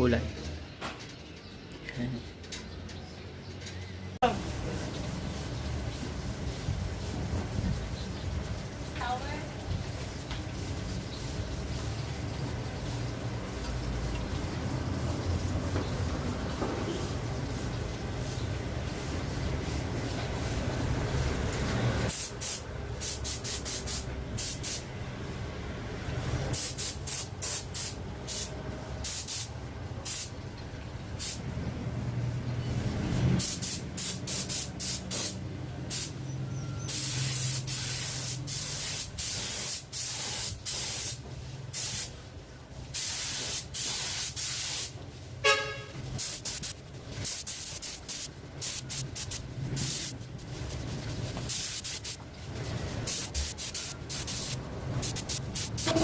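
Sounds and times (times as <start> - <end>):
paint spraying hiss: 21.6 - 24.9, 26.5 - 30.4, 31.2 - 31.4, 33.2 - 36.2, 36.9 - 42.1, 42.9 - 45.0, 46.2 - 50.2, 51.4 - 52.2, 53.0 - 56.0.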